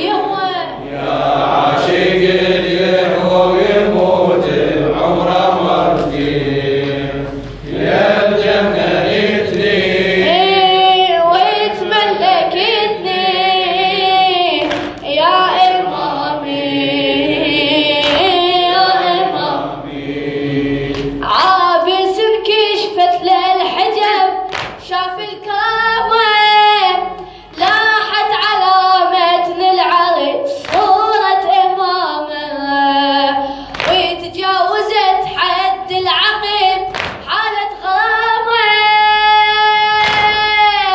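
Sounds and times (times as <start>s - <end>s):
voices singing a mourning chant: 0.0s - 26.2s.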